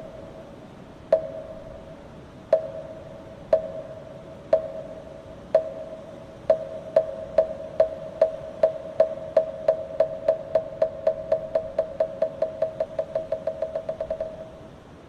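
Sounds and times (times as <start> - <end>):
wooden fish struck with mallet: 1.1 - 1.6, 2.5 - 5.0, 5.6 - 14.6.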